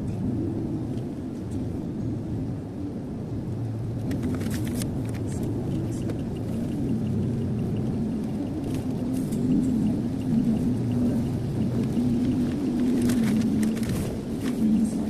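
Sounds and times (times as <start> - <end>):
car interior road noise: 0.0 - 15.0
faint regular ticking: 5.3 - 13.8.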